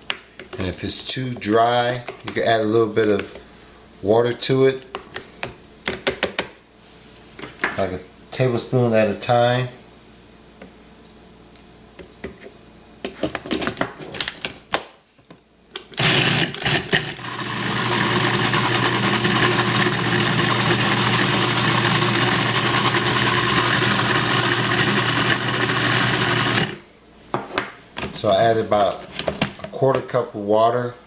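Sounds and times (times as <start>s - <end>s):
food processor motor running: 16.0s - 26.8s.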